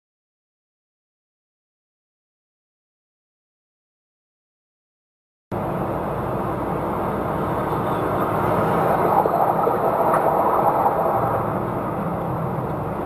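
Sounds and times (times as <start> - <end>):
vehicle engine and road noise: 5.5 - 13.0.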